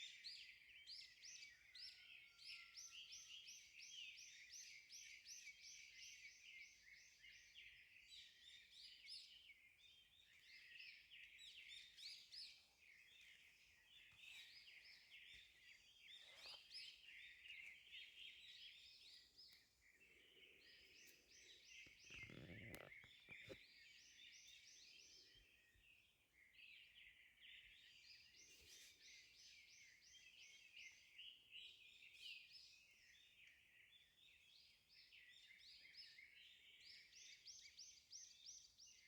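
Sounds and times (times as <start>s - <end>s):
faint clicks: 21.8s - 23.6s.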